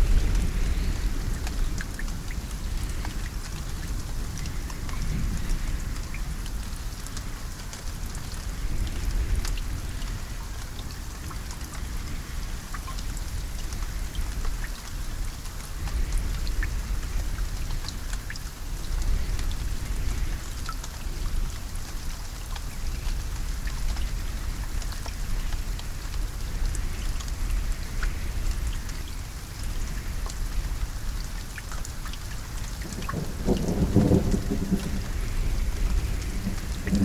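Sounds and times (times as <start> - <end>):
low thunder rumble: 0.0 - 7.0, 32.5 - 37.0
steady rain falling: 0.0 - 37.0.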